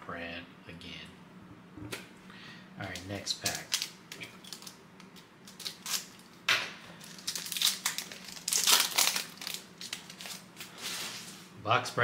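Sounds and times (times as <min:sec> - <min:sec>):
wrapper crinkling and tearing: 0:02.9 - 0:06.4, 0:07.0 - 0:11.3.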